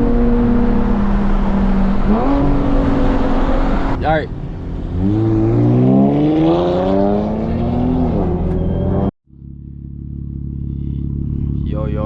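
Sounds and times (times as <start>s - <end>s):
car engine revving: 0.0s - 12.0s
low engine drone: 6.5s - 12.0s.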